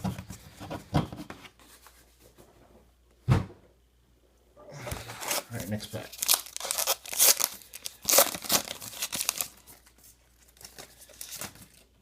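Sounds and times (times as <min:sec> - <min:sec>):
cards rustling: 0:05.0 - 0:11.9
wrapper tearing and crinkling: 0:05.2 - 0:11.9.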